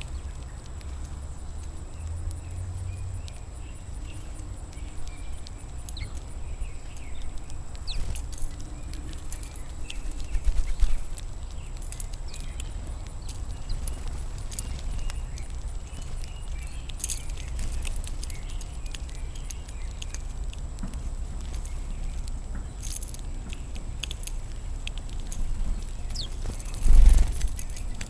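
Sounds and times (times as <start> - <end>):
birds tapping at feeder: 0.0 - 28.0
faint bird chirps: 1.4 - 20.3.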